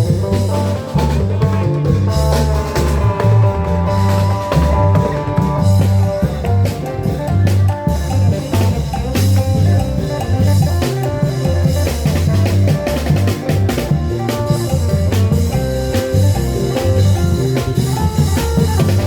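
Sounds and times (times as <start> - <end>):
drum band procession music: 0.0 - 19.0
heavy bass line: 0.0 - 19.0.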